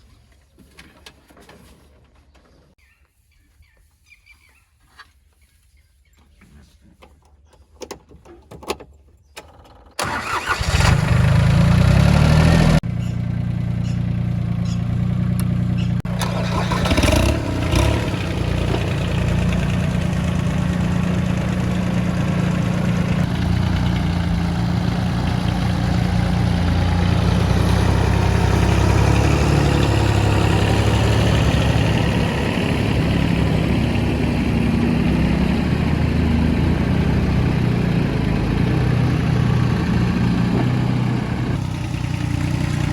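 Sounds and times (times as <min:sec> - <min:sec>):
diesel engine cranking and starting: 0:09.9 - 0:42.9
diesel engine running steadily: 0:10.0 - 0:42.9.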